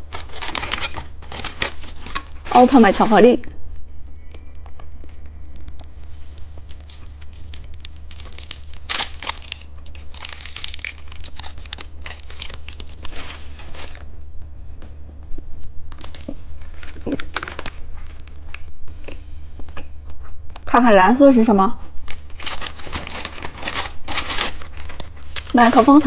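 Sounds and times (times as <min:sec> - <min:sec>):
candy wrapper crinkling: 0:00.0 - 0:03.2, 0:04.4 - 0:14.0, 0:15.9 - 0:19.2, 0:22.0 - 0:26.0
steady low hum: 0:00.0 - 0:26.0.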